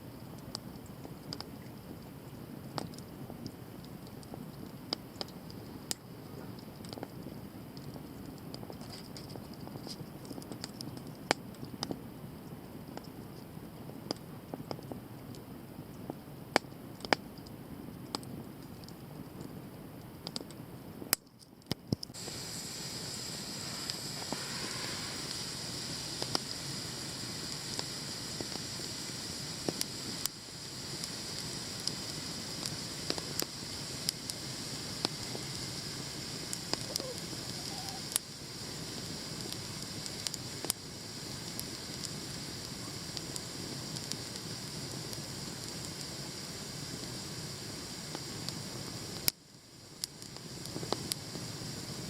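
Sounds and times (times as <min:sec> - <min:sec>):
campfire crackling and popping: 0:00.0 - 0:52.0
fire hissing: 0:22.0 - 0:52.0.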